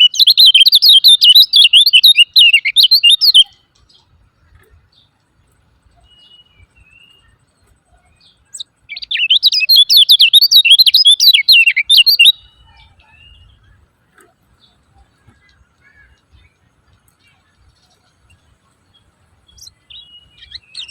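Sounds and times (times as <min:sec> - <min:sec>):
bird chattering: 0:00.0 - 0:03.5, 0:08.6 - 0:13.4
faint bird chirps: 0:00.0 - 0:20.9.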